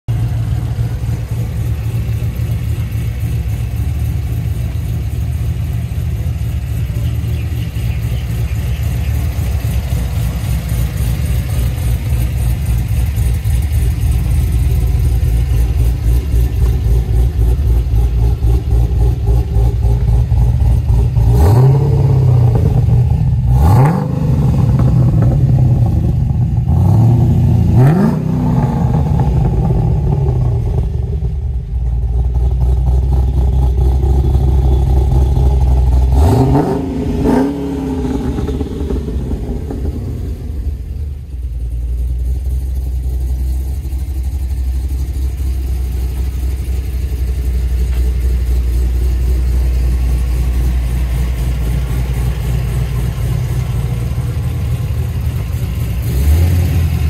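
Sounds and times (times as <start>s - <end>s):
car engine idling with uneven lope: 0.0s - 57.0s.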